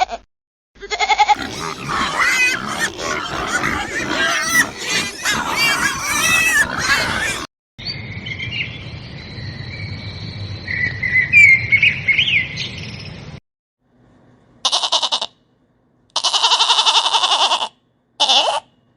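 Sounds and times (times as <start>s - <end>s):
pulsed bleats: 1.0s - 7.5s.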